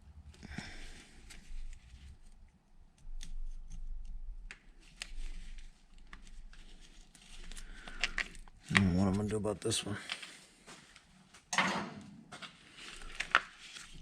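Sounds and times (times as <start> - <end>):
battery cable being handled: 1.3 - 9.2.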